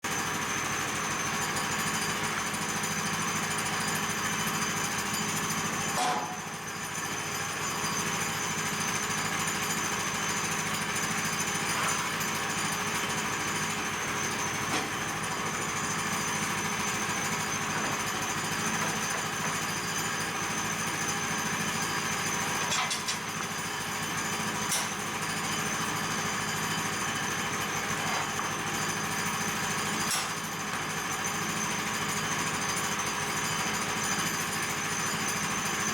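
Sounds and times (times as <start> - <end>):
bandsaw mill running: 0.1 - 35.9.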